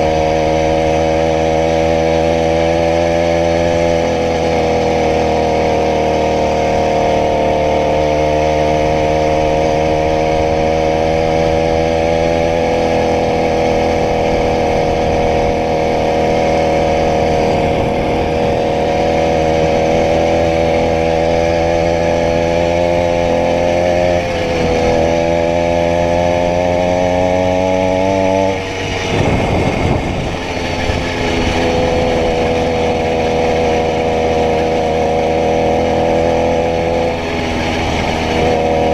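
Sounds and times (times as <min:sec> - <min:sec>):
two-stroke engine idling: 0:12.6 - 0:22.4, 0:28.5 - 0:35.1.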